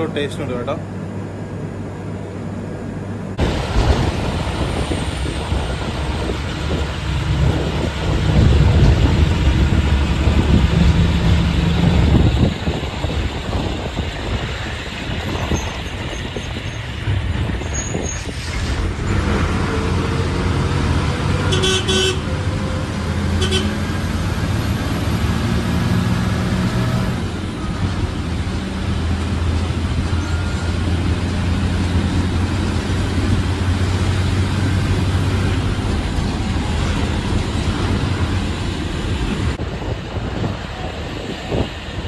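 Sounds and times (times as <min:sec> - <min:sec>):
vehicle engine rumbling: 0:00.0 - 0:42.0
car horns tooting: 0:21.3 - 0:24.1.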